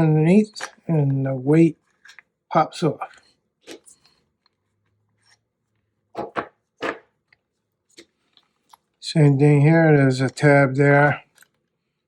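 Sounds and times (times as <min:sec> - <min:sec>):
plastic and metal parts handled: 0:01.8 - 0:02.3.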